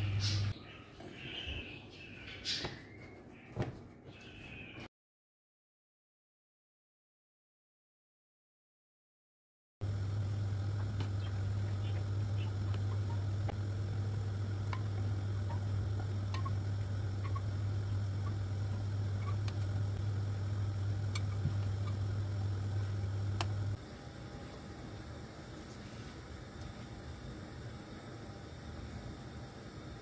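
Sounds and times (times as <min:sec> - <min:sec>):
steady low hum: 0:00.0 - 0:00.6, 0:09.8 - 0:30.0.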